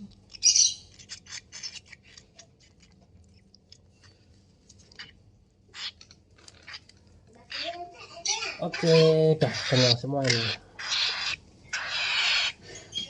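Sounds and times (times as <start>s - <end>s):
baby parrot raspy call: 7.5s - 13.0s.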